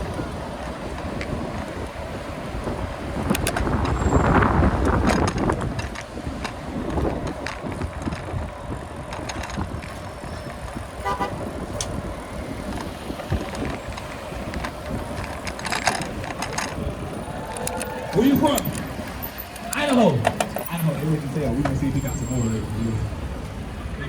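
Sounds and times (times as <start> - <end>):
bicycle clicks: 0.0 - 22.8
wind and road noise: 0.0 - 24.0
short horn toot: 11.0 - 11.4.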